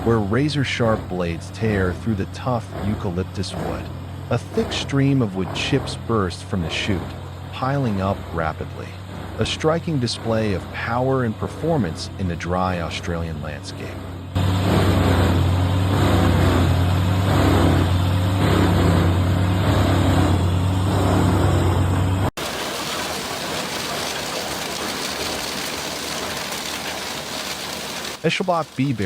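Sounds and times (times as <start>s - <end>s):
wood chipper engine hum: 0.0s - 29.0s
steady hiss: 22.4s - 29.0s.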